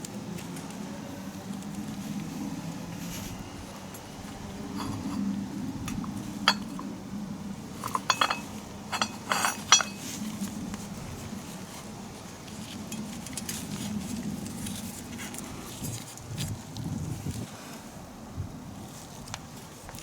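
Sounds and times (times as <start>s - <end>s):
steady low hum: 0.0s - 15.7s
metal tools clinking: 4.7s - 5.3s, 5.9s - 6.9s, 7.8s - 10.1s.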